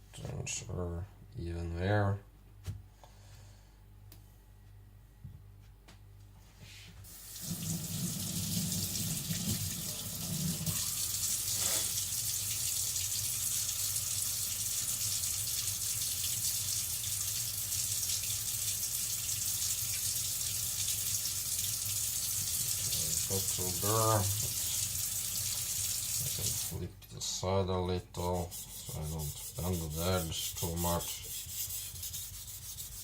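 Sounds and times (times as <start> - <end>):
tap water running into sink: 7.1 - 26.8.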